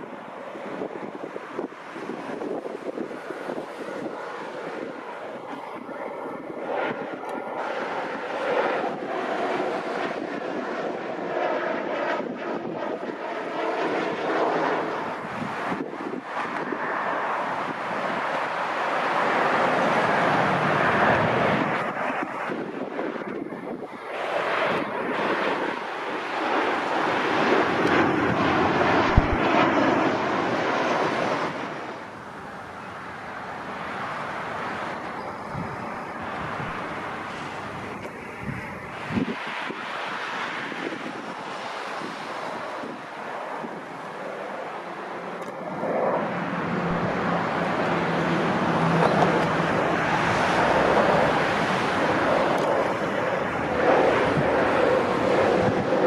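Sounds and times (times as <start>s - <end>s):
airplane engine rushing: 0.0s - 56.0s
wind buffeting microphone: 0.0s - 56.0s.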